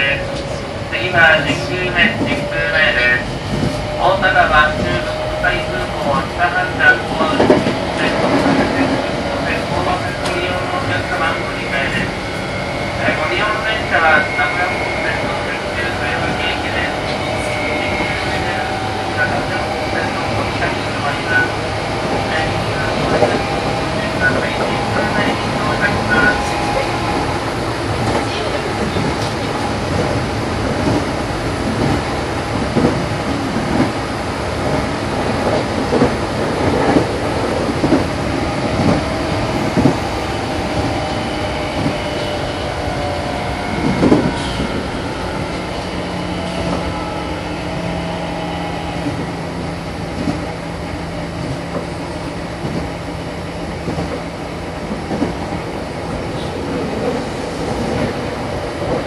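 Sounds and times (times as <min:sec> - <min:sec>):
train wheels rumbling on rail: 0:00.0 - 0:59.0
rail-joint clicks: 0:06.9 - 0:09.1, 0:10.0 - 0:11.0, 0:27.9 - 0:33.0.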